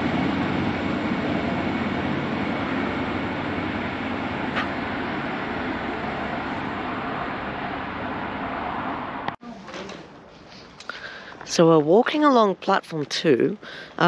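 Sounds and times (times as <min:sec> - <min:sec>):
diesel train rumbling: 0:00.0 - 0:09.4.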